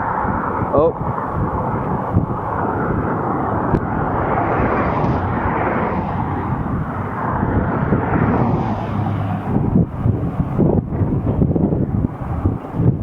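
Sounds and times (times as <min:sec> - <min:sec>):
wind rushing on microphone: 0:00.0 - 0:13.0.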